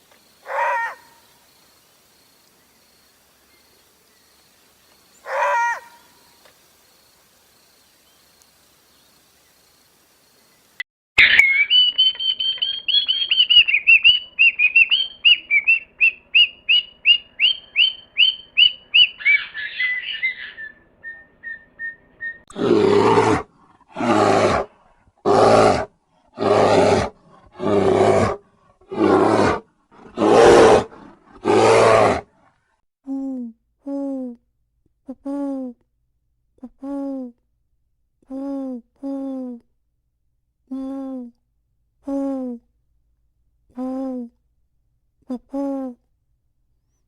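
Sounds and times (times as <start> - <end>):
harsh rasping animal calls: 0.4 - 1.2, 5.2 - 6.1, 11.2 - 32.3
rapid high chirps: 11.2 - 22.5.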